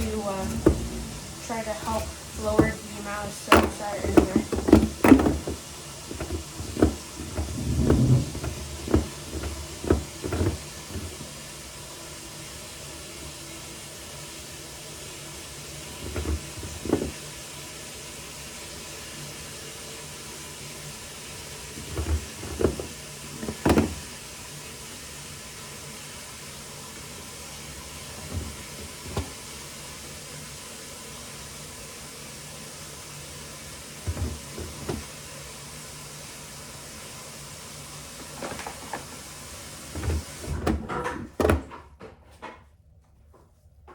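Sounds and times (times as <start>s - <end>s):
bucket knocks and clunks: 0.0s - 11.4s, 15.9s - 17.2s, 21.8s - 24.1s, 28.1s - 29.5s, 34.0s - 35.1s, 39.9s - 41.9s
water running into a bucket: 0.0s - 41.7s.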